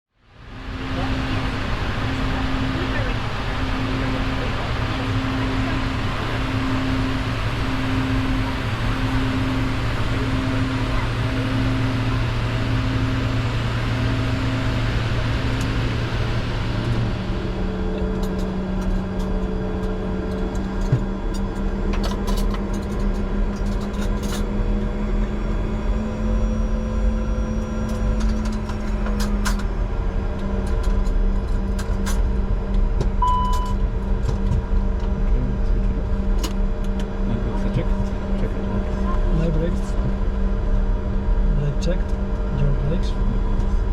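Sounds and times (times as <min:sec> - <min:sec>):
cockpit low hum: 0:00.1 - 0:43.9
pulsing tone: 0:00.5 - 0:19.8, 0:33.2 - 0:34.2
short beep: 0:33.2 - 0:33.8.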